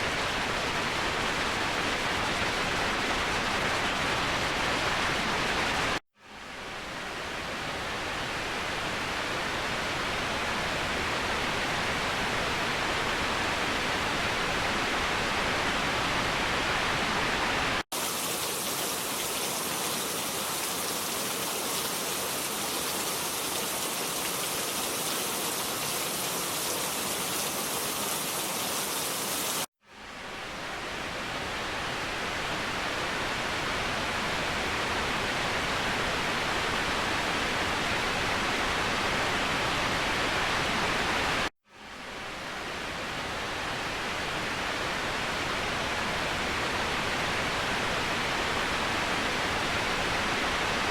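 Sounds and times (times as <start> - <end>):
waterfall rushing: 17.7 - 29.7.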